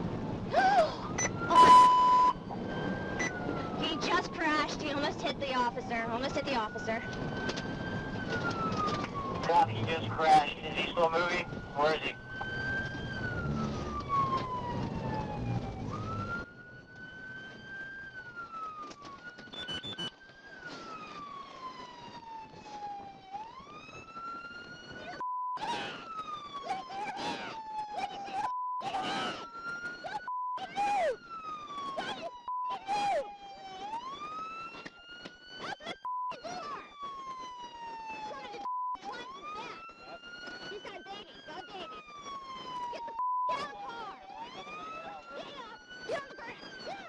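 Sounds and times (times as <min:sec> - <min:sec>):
car moving: 0:00.0 - 0:17.4
police siren wailing: 0:00.0 - 0:47.0.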